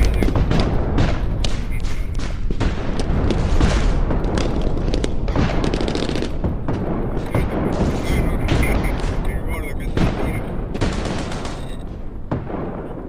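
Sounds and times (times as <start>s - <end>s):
airsoft guns firing bursts: 0.0s - 12.7s
low rumble: 6.3s - 13.0s.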